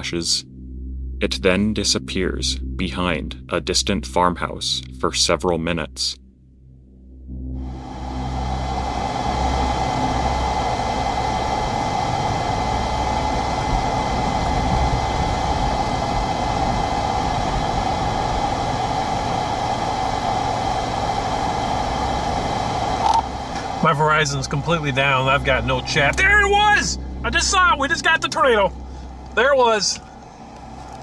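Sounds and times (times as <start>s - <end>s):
vehicle road and engine noise: 28.6s - 31.0s.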